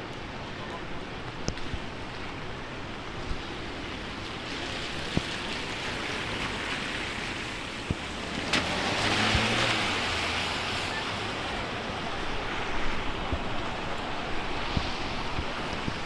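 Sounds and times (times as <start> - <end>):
heavy rain: 0.0 - 16.0
wind: 0.0 - 16.0
vehicle passing on wet road: 3.8 - 16.0.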